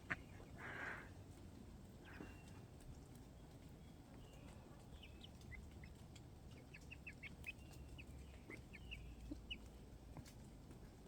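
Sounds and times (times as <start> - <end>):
chickens chirping: 4.8 - 9.8.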